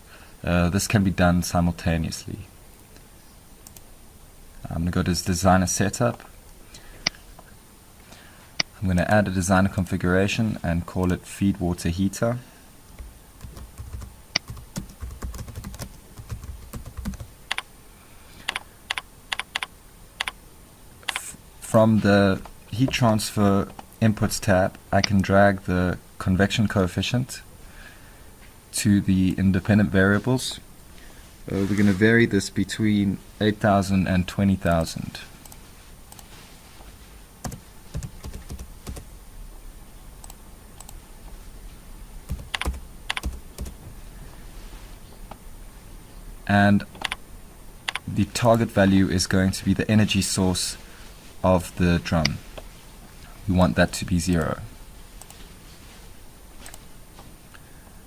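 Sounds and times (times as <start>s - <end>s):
computer keyboard typing: 13.4s - 17.6s, 18.5s - 20.4s, 37.4s - 39.1s, 42.3s - 43.8s, 47.0s - 47.2s.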